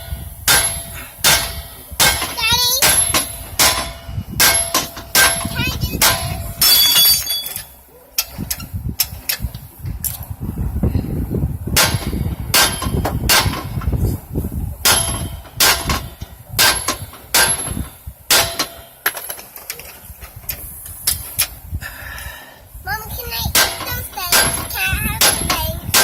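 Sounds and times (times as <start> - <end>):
sledgehammer clanging on metal: 0.0 - 9.4, 11.8 - 13.9, 14.8 - 20.0, 23.5 - 26.0.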